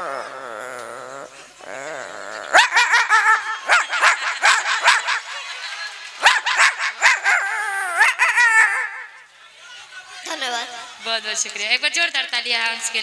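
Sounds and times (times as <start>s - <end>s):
man imitating dog growl: 0.0s - 5.0s, 7.0s - 9.2s
man imitating yelping barks: 0.0s - 5.2s, 6.2s - 9.3s.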